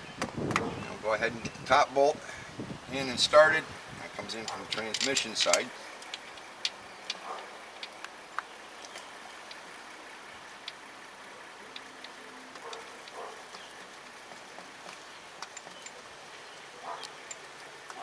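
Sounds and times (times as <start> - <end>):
light metallic clicks and taps: 4.4 - 9.6, 14.3 - 16.0.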